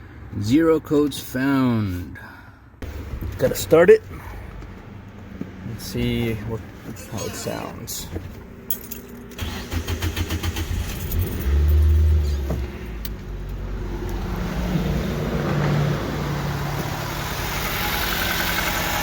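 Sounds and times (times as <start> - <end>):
car engine revving and idling: 9.3 - 19.0
starter motor cranking: 9.4 - 11.6.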